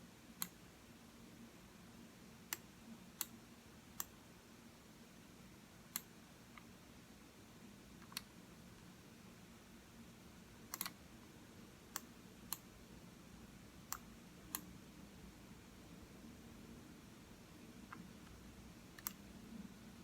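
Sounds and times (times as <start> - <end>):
faint room hum: 0.0 - 20.0
computer mouse clicking: 2.5 - 3.4, 5.9 - 6.7, 8.0 - 8.3, 10.7 - 11.0, 11.9 - 12.7, 13.9 - 14.7, 19.0 - 19.2.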